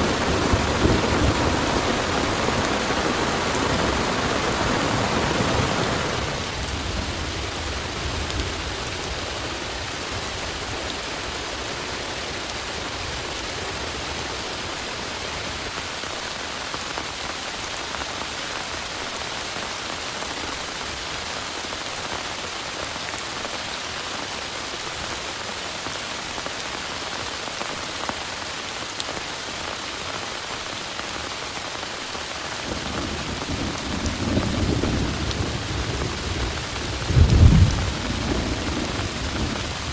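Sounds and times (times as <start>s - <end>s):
low thunder rumble: 0.0s - 11.5s, 32.7s - 39.9s
heavy rain pouring: 0.0s - 39.9s.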